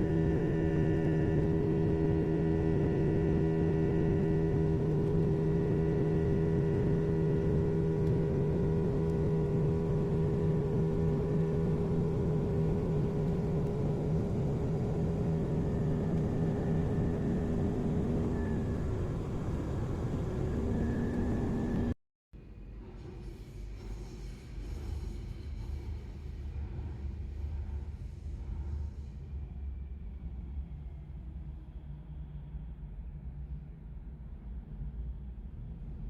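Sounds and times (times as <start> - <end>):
jet engine and airflow drone: 0.0 - 22.0.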